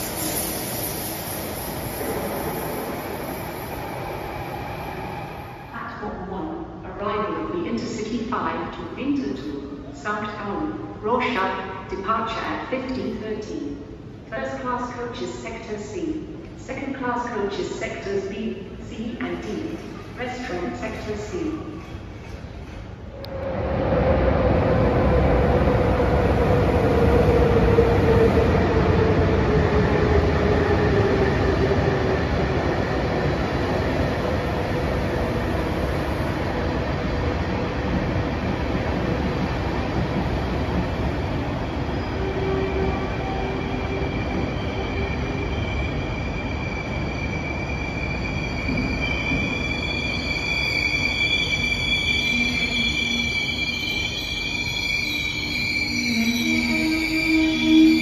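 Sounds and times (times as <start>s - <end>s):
train rumbling: 0.0s - 6.0s, 21.8s - 54.8s
high brake squeal: 42.1s - 58.0s.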